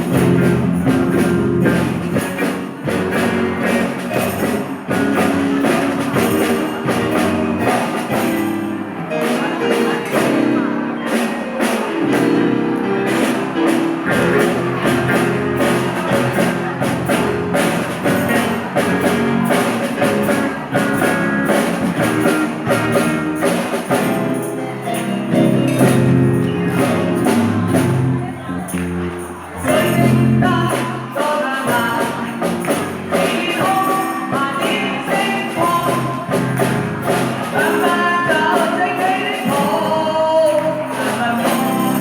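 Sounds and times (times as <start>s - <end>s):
band music with steady beat: 0.0s - 42.0s.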